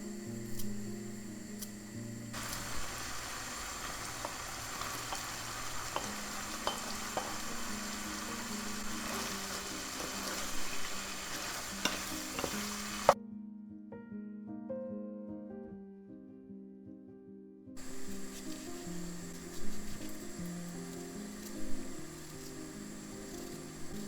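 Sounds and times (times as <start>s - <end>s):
food sizzling in a frying pan: 0.0s - 13.2s, 17.8s - 24.0s
soft background music: 0.0s - 24.0s
utensil clicking against pan: 2.4s - 13.2s.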